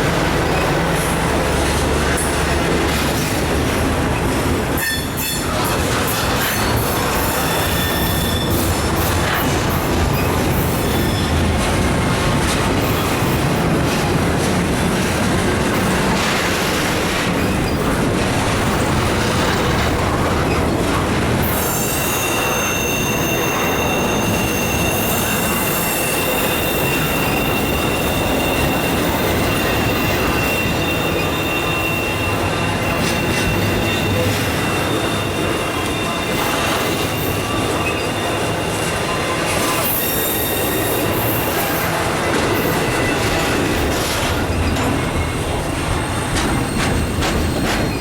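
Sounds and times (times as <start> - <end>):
train wheels rumbling on rails: 0.0 - 48.0
high wheel squeal: 4.7 - 9.2, 21.4 - 48.0.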